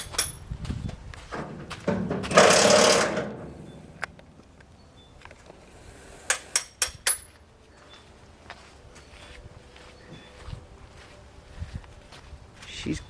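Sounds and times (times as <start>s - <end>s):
clattering crash: 1.3s - 4.3s
sharp knocks: 1.3s - 4.3s.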